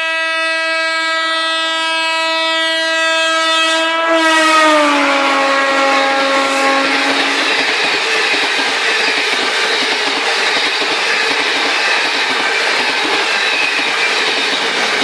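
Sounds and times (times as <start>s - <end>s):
train horn blast: 0.0s - 7.7s
passing train rushing: 3.6s - 15.0s.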